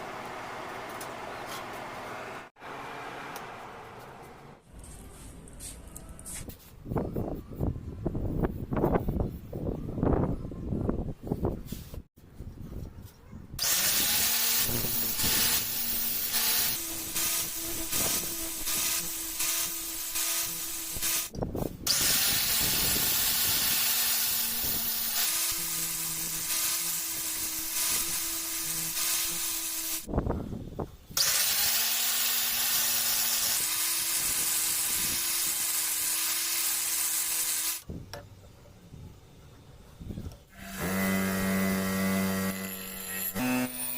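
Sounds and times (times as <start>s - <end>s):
grinder grinding steel: 13.6s - 30.1s, 31.2s - 37.9s, 40.5s - 43.9s.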